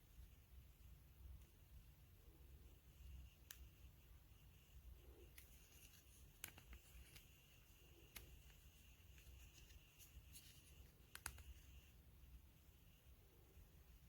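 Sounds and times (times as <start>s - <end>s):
faint sharp clicks: 10.4s - 11.7s.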